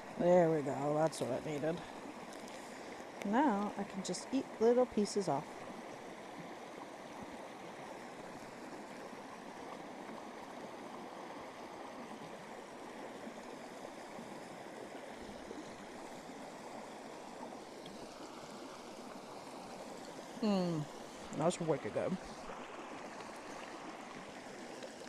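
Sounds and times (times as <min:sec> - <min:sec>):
running water: 0:00.0 - 0:25.0.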